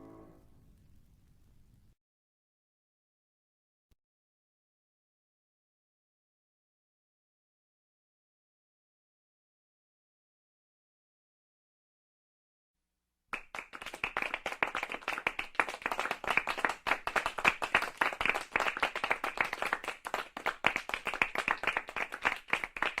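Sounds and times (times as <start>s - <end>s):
group applauding: 13.4s - 23.0s.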